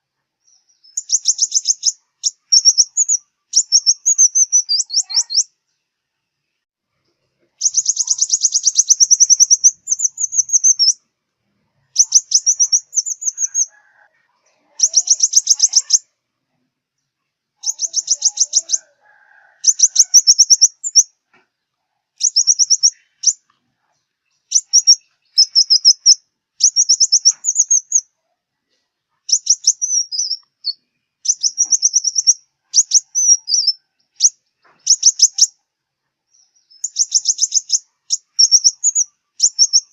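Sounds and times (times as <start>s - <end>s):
bird twittering trills: 0.5s - 5.5s, 7.6s - 11.0s, 11.9s - 14.0s, 14.7s - 16.1s, 17.6s - 21.1s, 22.2s - 23.4s, 24.3s - 28.1s, 29.3s - 35.5s, 36.3s - 39.9s.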